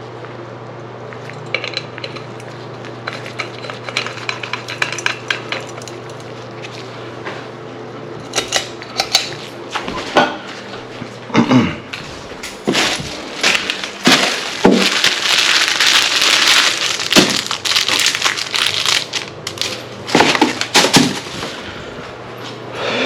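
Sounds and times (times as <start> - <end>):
loud crackling crunching: 12.0 - 21.6.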